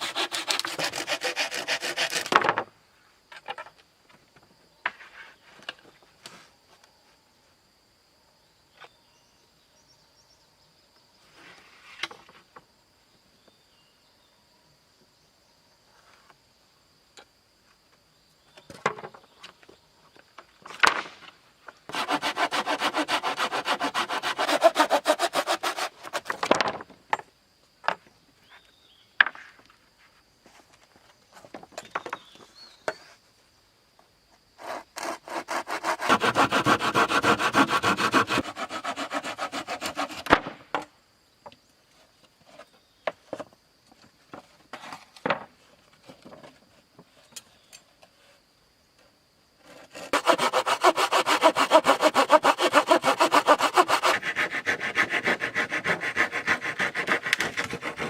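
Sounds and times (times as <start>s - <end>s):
hand saw cutting wood: 0.0s - 2.4s, 21.9s - 26.4s, 34.6s - 40.5s, 49.8s - 58.0s.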